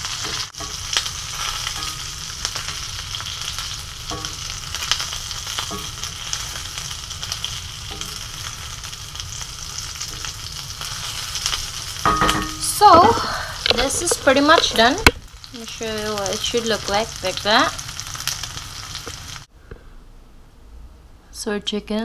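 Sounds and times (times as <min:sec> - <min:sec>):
chicken sizzling in a skillet: 0:00.0 - 0:19.5
wooden spoon scraping: 0:10.9 - 0:15.1.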